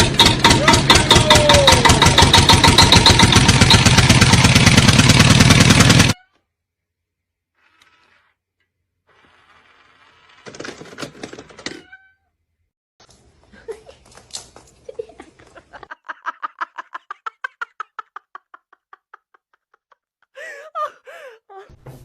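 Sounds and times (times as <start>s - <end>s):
knocking: 0.0s - 4.2s.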